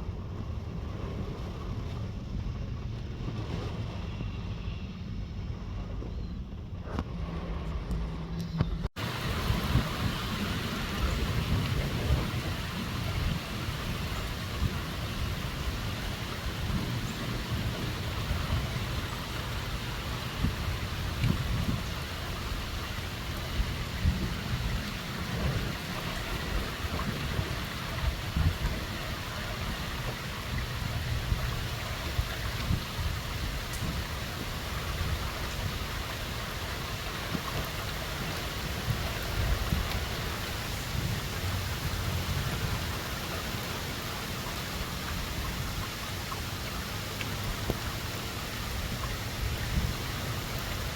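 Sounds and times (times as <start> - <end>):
wind gusts buffeting microphone: 0.0 - 50.9
storm wind rushing: 6.8 - 36.1.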